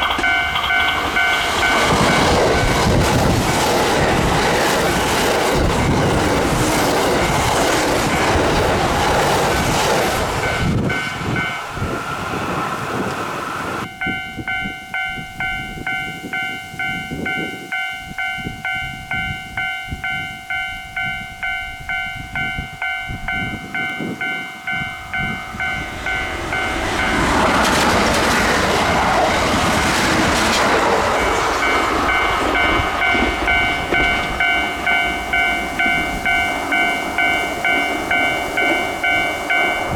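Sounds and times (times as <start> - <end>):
level-crossing warning bell: 0.0 - 39.9
train passing at speed: 0.0 - 39.9.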